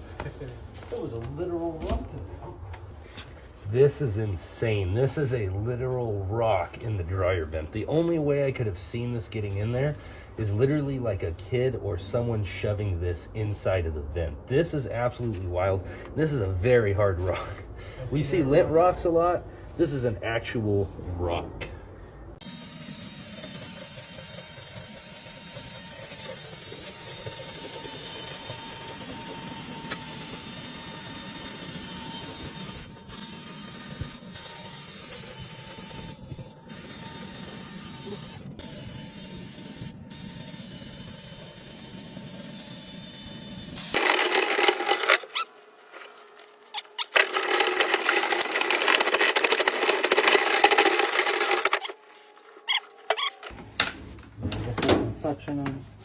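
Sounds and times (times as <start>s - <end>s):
thin steady whine: 0.0s - 56.0s
vent cleaning machine rattling: 44.0s - 45.4s, 46.8s - 52.0s.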